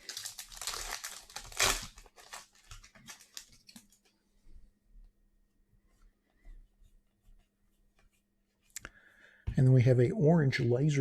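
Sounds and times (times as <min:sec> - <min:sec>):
plastic wrapper tearing and crinkling: 0:00.0 - 0:04.0.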